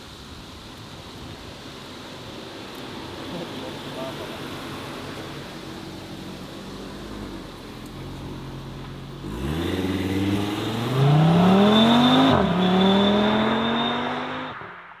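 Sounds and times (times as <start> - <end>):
car engine accelerating: 3.4 - 15.0.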